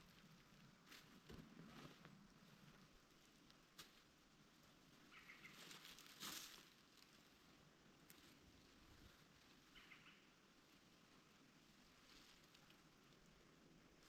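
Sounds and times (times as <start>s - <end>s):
faint bird chirps: 5.0s - 5.8s, 9.5s - 10.6s
soil being scuffed and packed: 5.5s - 6.8s.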